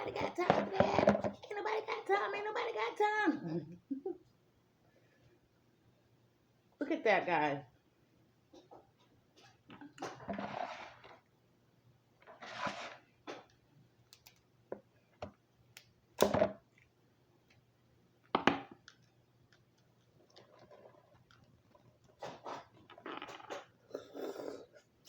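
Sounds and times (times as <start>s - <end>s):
clicks and snaps: 13.4s - 14.5s
slurping and chewing: 19.8s - 25.0s.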